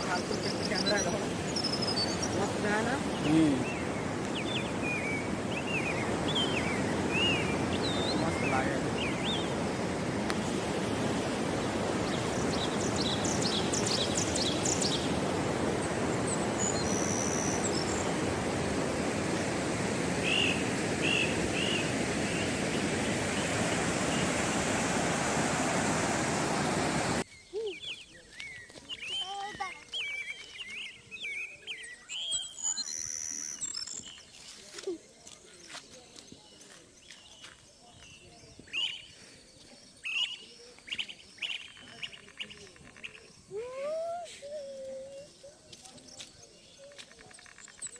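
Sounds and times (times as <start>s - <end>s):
birds chirping and calling: 0.0s - 9.9s, 11.9s - 25.5s
birds chirping: 0.0s - 47.9s.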